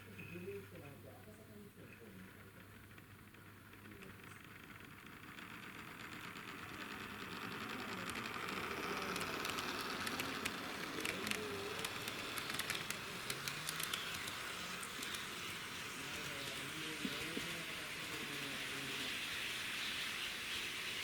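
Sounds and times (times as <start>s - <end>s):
model railcar running on track: 0.0s - 21.0s
wheels clicking over rail joints: 0.0s - 21.0s.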